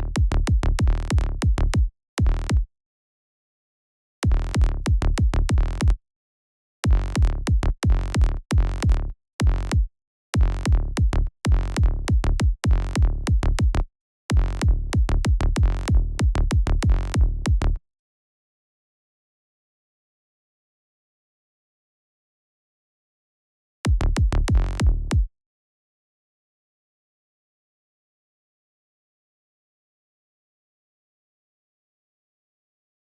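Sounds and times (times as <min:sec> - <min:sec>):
synthesized bass pattern: 0:00.0 - 0:02.6, 0:04.3 - 0:05.9, 0:06.9 - 0:09.8, 0:10.4 - 0:13.8, 0:14.4 - 0:17.8, 0:23.9 - 0:25.3
electronic kick drum: 0:00.1 - 0:02.7, 0:04.3 - 0:06.0, 0:06.9 - 0:17.6, 0:23.9 - 0:25.3.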